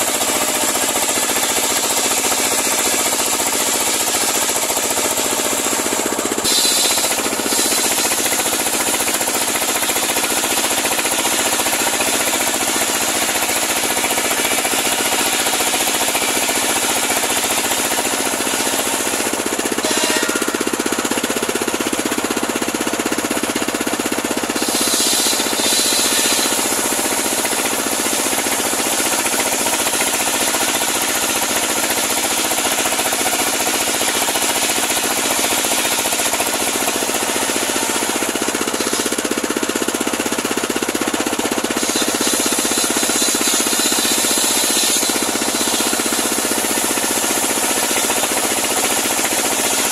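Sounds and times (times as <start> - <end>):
sawmill engine running: 0.0 - 49.9
saw blade hissing: 5.2 - 9.6, 12.8 - 20.8, 24.5 - 28.6, 41.7 - 48.6.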